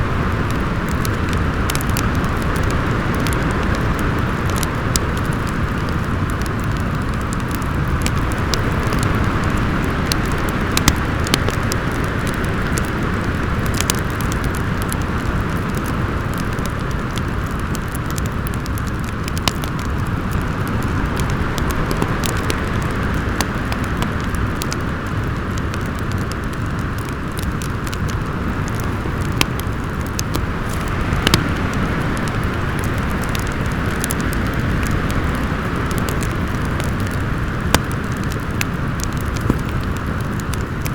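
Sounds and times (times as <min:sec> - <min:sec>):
wind blowing: 0:00.0 - 0:17.7, 0:27.7 - 0:40.9
wood fire crackling and popping: 0:00.0 - 0:40.9.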